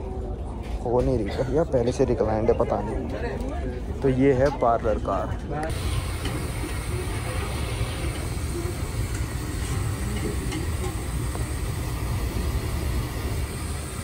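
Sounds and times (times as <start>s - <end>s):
train rumble inside carriage: 5.4s - 14.0s.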